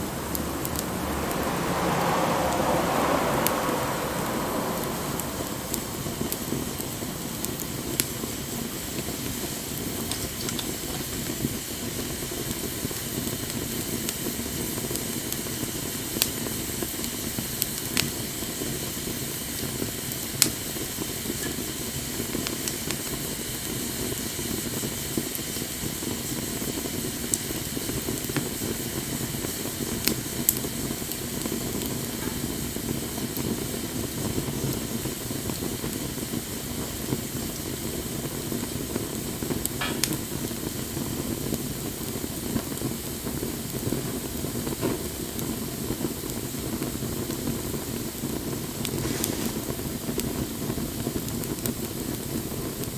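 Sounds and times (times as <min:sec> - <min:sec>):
fire crackles and pops: 0:00.0 - 0:52.9
wood fire hissing: 0:00.0 - 0:52.9.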